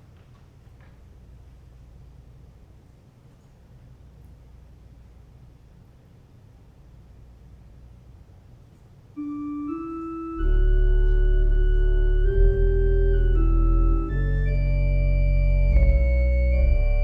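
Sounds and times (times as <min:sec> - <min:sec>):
organ music: 0:09.2 - 0:17.0.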